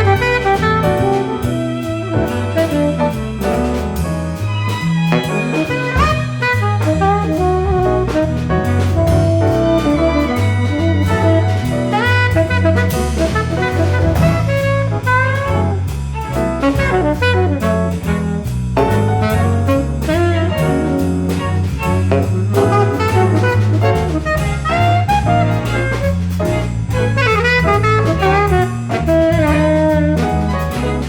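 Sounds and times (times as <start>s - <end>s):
tenor saxophone melody: 0.0s - 3.7s, 5.1s - 26.2s, 26.8s - 31.0s
double bass: 0.0s - 31.0s
drum kit: 0.0s - 31.0s
piano: 0.0s - 31.0s.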